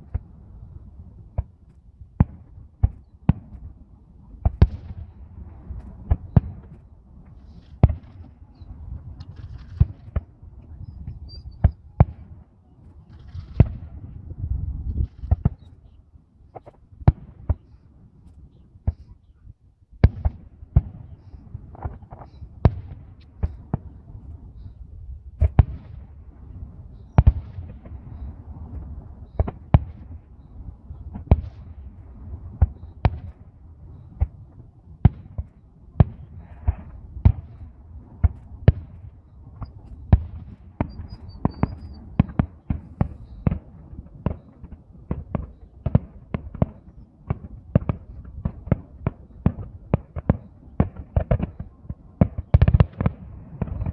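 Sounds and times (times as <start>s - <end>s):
fireworks bangs: 4.4s - 12.4s, 25.3s - 53.9s.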